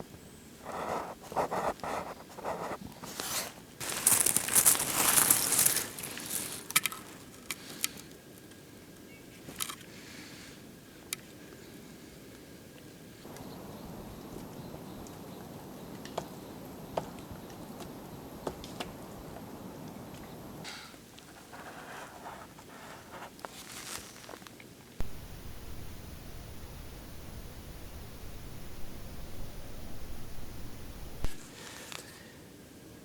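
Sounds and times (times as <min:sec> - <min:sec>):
rustling and crunching crackles: 0:00.8 - 0:08.0, 0:13.2 - 0:32.2
sharp clicks: 0:25.0 - 0:31.4.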